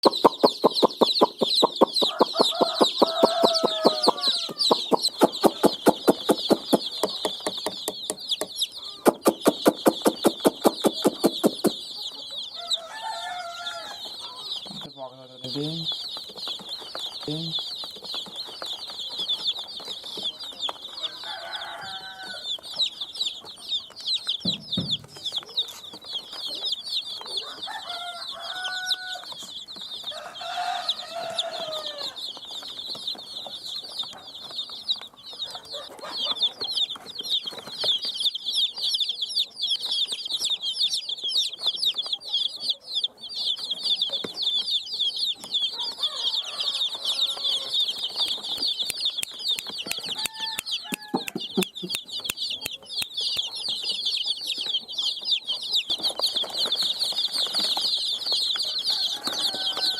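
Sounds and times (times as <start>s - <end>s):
hen clucking: 0.0s - 32.2s, 32.9s - 57.7s
baby chicks peeping: 0.0s - 59.9s.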